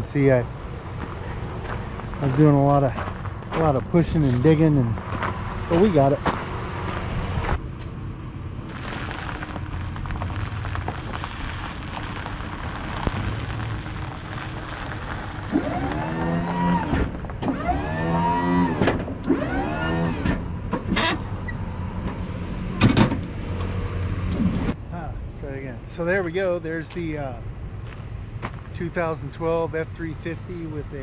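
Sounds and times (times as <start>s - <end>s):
hydraulic pump motor whining: 15.5s - 22.2s.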